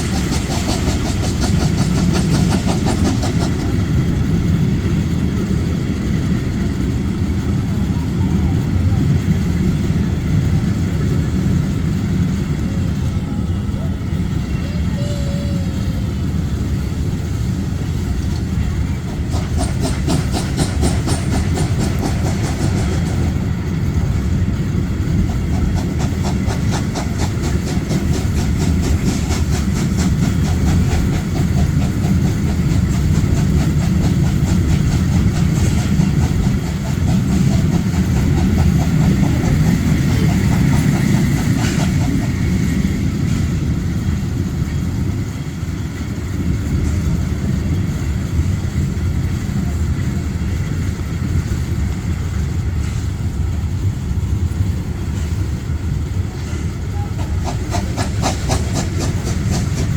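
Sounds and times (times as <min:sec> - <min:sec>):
train rumbling on rails: 0:00.0 - 0:59.9
rapid regular wheel clicking: 0:18.2 - 0:23.4, 0:24.9 - 0:42.5.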